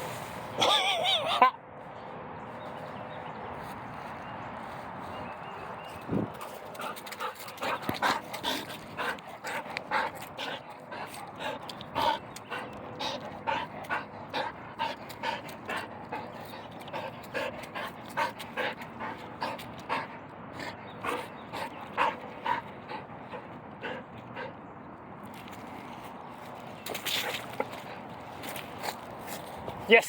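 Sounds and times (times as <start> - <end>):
dog panting: 6.3 - 24.6.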